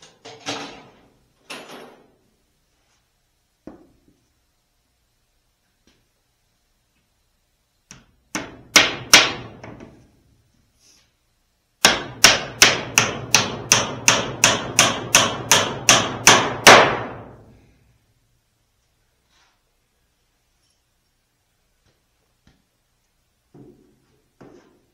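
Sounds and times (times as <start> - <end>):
hammer striking wood: 7.9 - 9.9, 11.8 - 17.4.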